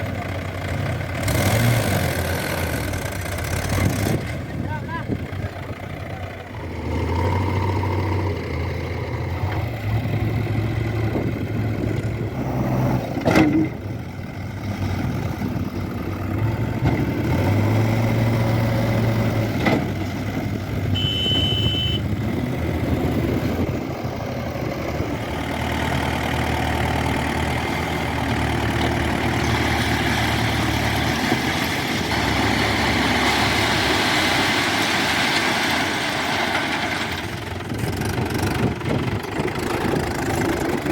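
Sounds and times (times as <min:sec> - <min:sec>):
diesel engines running: 0:00.0 - 0:40.9
short high beep: 0:21.0 - 0:22.0.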